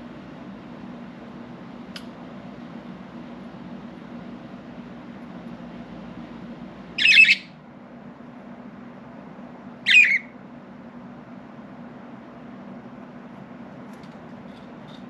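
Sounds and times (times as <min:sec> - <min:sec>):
steady low hum: 0:00.0 - 0:15.0
budgerigar squawking: 0:07.0 - 0:07.5, 0:09.9 - 0:10.3.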